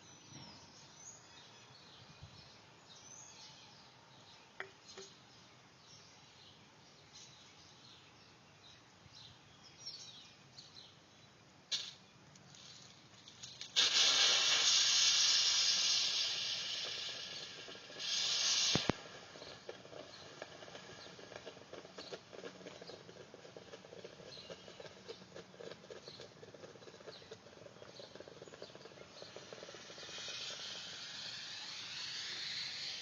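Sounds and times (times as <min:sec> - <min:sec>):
steam hissing: 0:13.6 - 0:22.0, 0:28.7 - 0:33.0
faint crackling ticks: 0:16.6 - 0:31.7.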